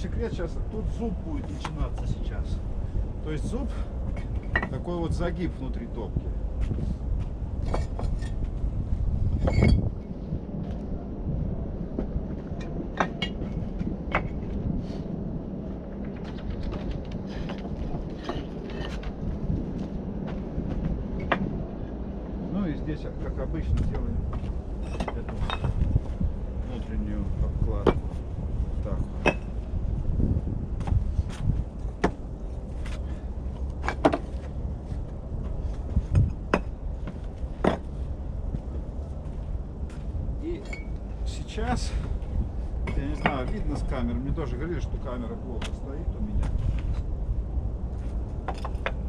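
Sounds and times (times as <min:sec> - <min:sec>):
low rumble: 0:00.0 - 0:49.0
bricks knocking and clinking: 0:12.9 - 0:14.4, 0:16.1 - 0:19.1, 0:24.3 - 0:25.9, 0:27.8 - 0:28.1, 0:29.2 - 0:29.6, 0:33.7 - 0:34.6, 0:36.1 - 0:38.0, 0:48.4 - 0:49.0.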